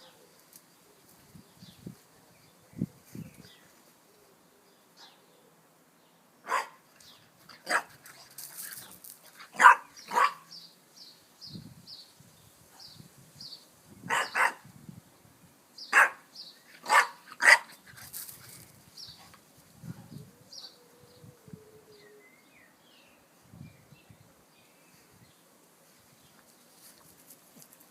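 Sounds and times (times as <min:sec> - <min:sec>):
puppy barking: 0:06.5 - 0:06.8, 0:07.6 - 0:07.9, 0:09.6 - 0:10.5, 0:14.1 - 0:14.6, 0:15.9 - 0:16.2, 0:16.8 - 0:17.7.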